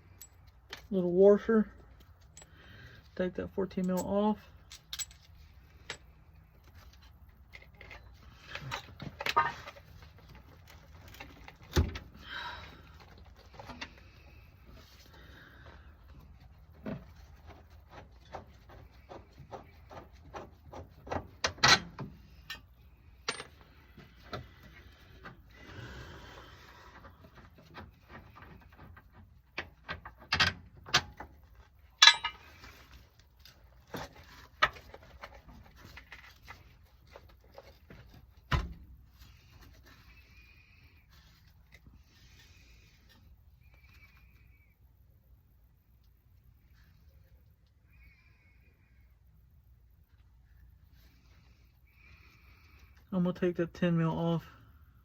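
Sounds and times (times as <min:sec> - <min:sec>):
sharp metal clanks and knocks: 0:32.0 - 0:32.6.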